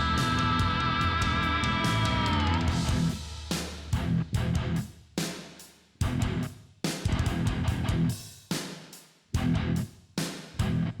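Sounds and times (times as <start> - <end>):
electric guitar riffs: 0.0 - 3.2, 7.1 - 8.1
rock drums: 0.0 - 11.0.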